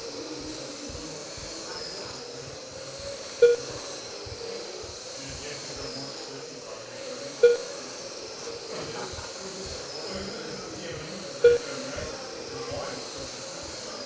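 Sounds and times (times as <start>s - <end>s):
rc truck motors whining: 0.0s - 14.0s
electronic beeps: 1.8s - 6.3s, 7.2s - 13.9s.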